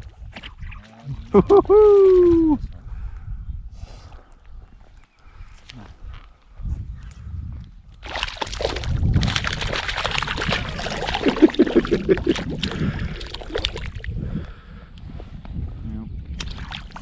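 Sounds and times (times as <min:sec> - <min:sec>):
water splashing: 0:08.0 - 0:14.1, 0:16.4 - 0:17.0.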